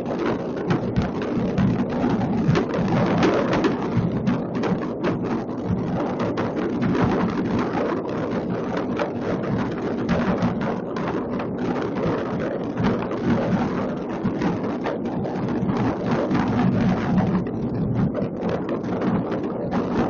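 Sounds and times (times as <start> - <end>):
fireworks crackling and banging: 0.0 - 11.6.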